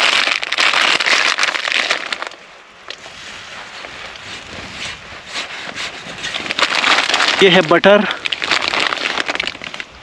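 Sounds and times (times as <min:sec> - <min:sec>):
plastic bags rustling: 0:06.3 - 0:10.0.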